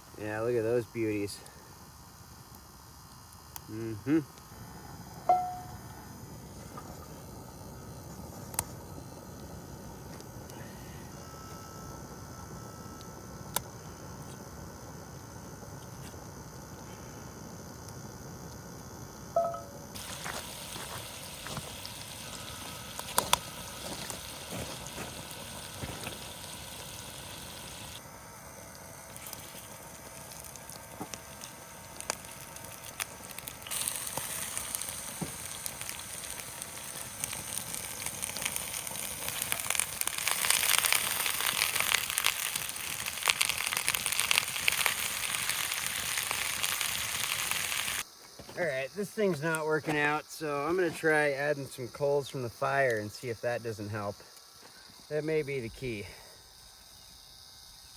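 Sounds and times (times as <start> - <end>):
meat sizzling in a pan: 19.4 - 48.1.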